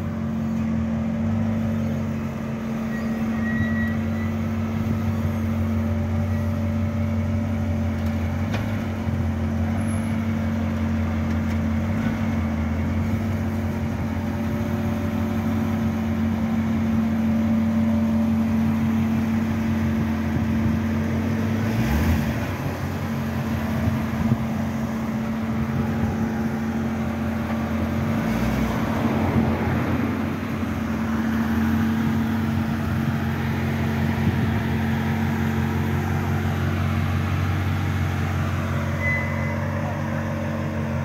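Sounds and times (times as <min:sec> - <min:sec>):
car engine running at low revs: 0:00.0 - 0:41.0.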